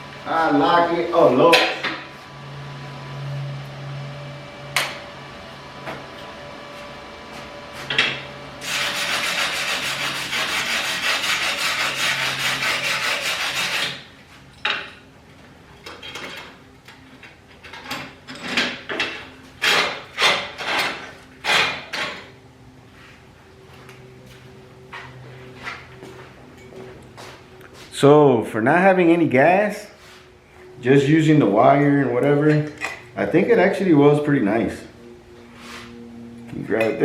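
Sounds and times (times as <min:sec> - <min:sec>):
scraping strokes on metal: 0:08.6 - 0:14.1.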